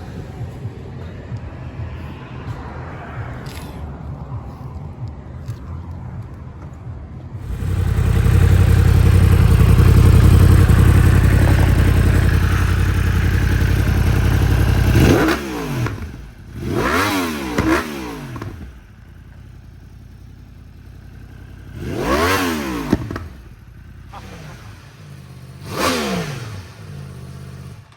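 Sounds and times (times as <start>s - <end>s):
motorcycle engine revving: 7.4s - 27.9s.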